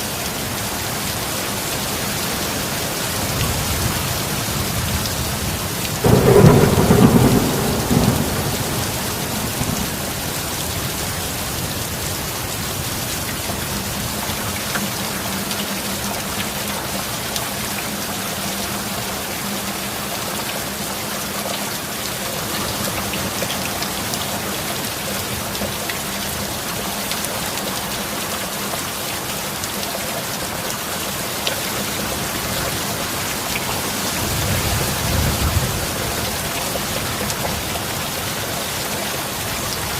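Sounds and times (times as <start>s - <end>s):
heavy rain: 0.0s - 39.9s
thunder rumbling: 5.4s - 12.3s.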